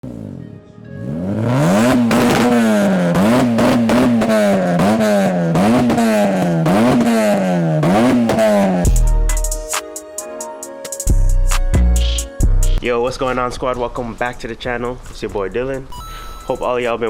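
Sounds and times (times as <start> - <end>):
car engine revving: 0.0 - 9.7.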